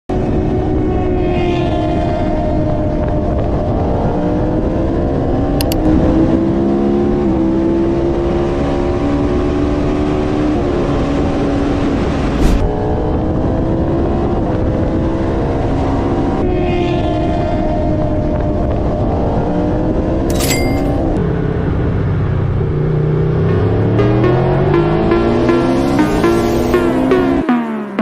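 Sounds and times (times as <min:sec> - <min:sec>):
clicks: 0:05.6 - 0:05.9
brief thump: 0:12.4 - 0:12.7.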